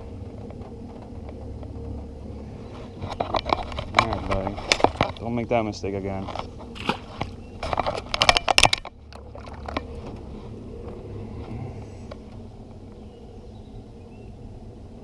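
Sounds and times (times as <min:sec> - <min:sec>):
sharp knocks and rattles: 0:00.0 - 0:05.5, 0:06.1 - 0:10.4
steady low hum: 0:00.0 - 0:15.0.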